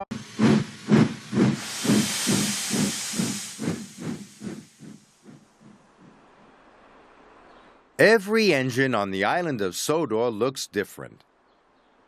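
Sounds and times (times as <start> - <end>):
steam locomotive chuffing: 0.0 - 6.2
loud hiss of steam: 0.1 - 5.1.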